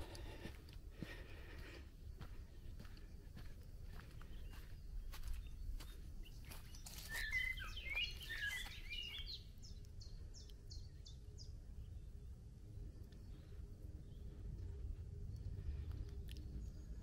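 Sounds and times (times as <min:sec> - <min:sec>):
songbird singing: 0:00.0 - 0:17.0
low rumble: 0:09.5 - 0:17.0.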